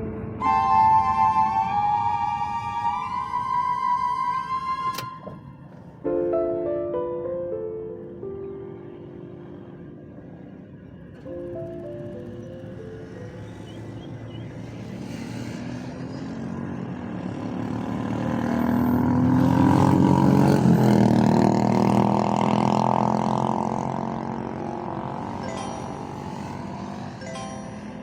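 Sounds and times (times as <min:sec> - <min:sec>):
engine passing by: 0:09.0 - 0:28.0.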